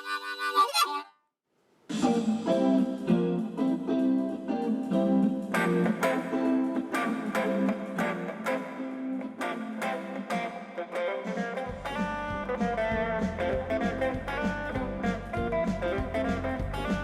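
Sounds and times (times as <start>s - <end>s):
plucked guitar: 1.9s - 17.0s
deep bass: 11.7s - 17.0s.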